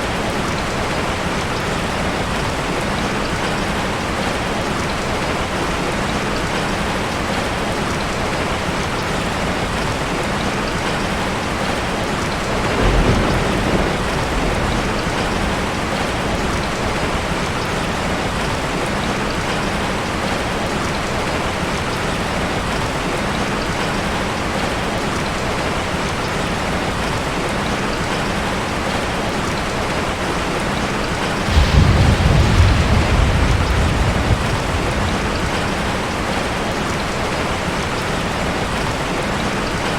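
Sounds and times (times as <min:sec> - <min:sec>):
steady rain hissing: 0:00.0 - 0:39.9
low rolls of thunder: 0:12.4 - 0:17.4, 0:31.4 - 0:37.6.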